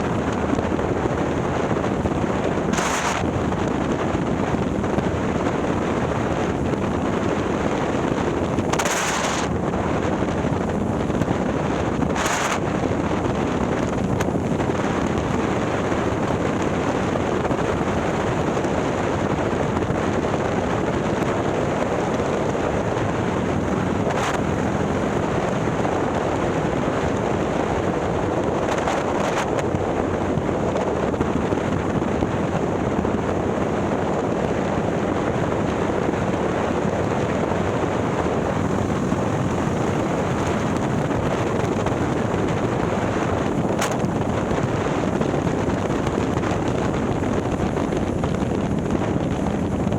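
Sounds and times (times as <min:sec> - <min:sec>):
wind rushing over microphone: 0:00.0 - 0:49.9
motorcycle engine: 0:22.8 - 0:25.9, 0:32.5 - 0:46.6.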